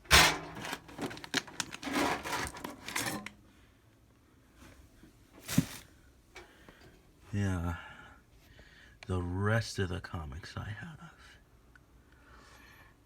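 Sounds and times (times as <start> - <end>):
rustling of handled objects: 0.0 - 3.4, 5.4 - 6.0.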